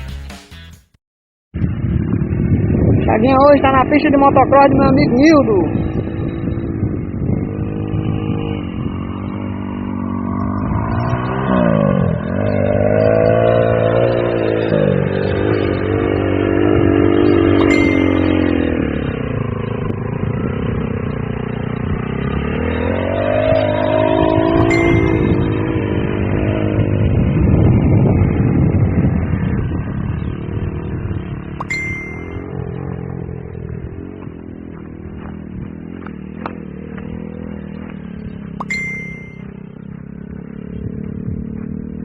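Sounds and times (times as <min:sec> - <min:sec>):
small off-road engine revving: 0:01.6 - 0:42.0.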